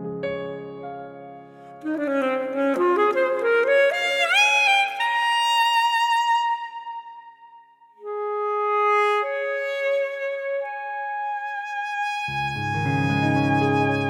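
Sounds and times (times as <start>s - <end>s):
piano accompaniment: 0.0s - 4.8s, 12.3s - 14.0s
classical saxophone: 1.6s - 14.0s.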